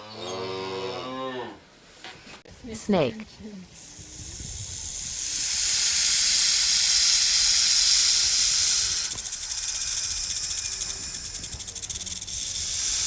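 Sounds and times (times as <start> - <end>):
snake hissing: 3.7 - 13.0.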